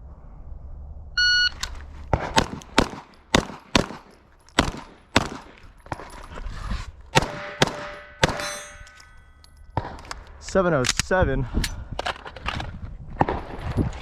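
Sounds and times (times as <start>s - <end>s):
pistol shots: 2.1s - 5.6s, 7.1s - 8.8s
steel targets ringing: 7.4s - 9.7s.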